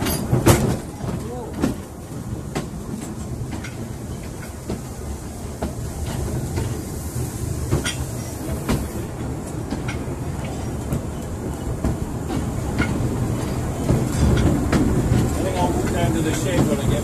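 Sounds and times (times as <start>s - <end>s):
train rumbling over track: 0.0s - 17.0s
wheels clicking over rail joints: 0.0s - 17.0s.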